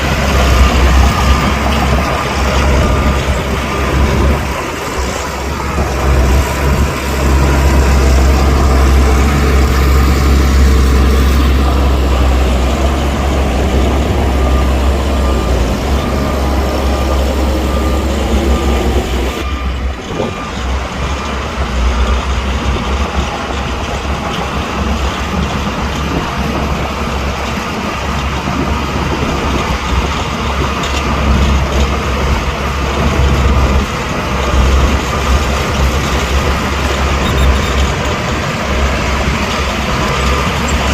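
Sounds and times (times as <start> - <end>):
heavy diesel machinery working: 0.0 - 40.9.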